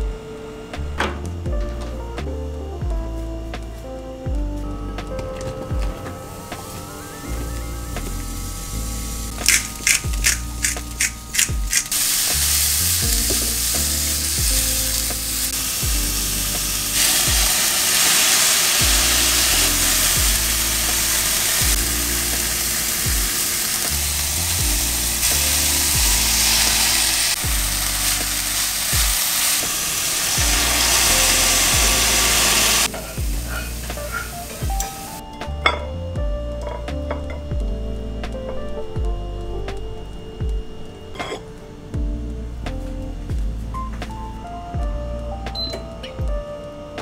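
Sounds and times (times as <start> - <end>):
background music: 0.0 - 47.0
mushrooms sizzling in a pan: 7.2 - 35.2.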